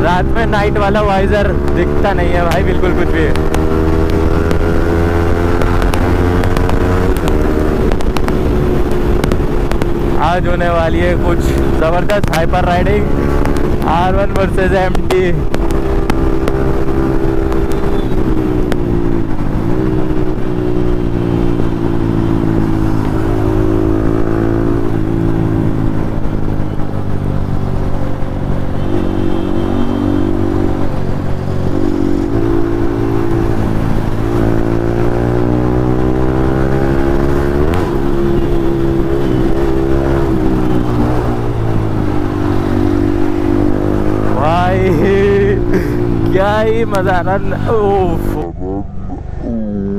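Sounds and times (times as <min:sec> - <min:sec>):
motorcycle engine running hard: 0:00.0 - 0:49.9.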